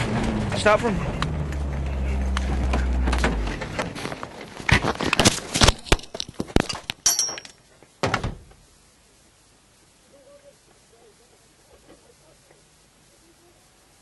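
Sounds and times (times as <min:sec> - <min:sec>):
rally car engine: 0:00.0 - 0:04.4.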